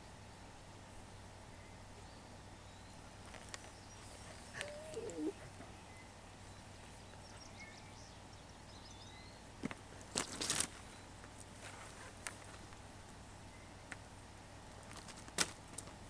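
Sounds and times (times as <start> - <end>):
faint high bird chirps: 3.8 - 6.0
low wavering animal call: 4.1 - 5.5.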